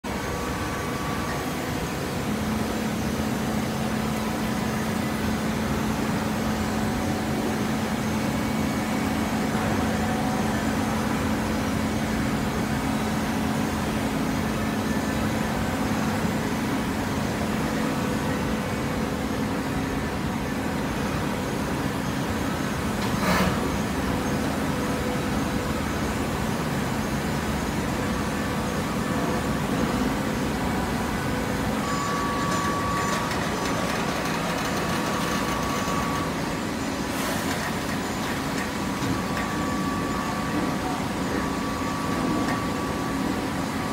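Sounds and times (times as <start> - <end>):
steady hum: 0.0 - 43.9
baler machine running: 22.4 - 43.9.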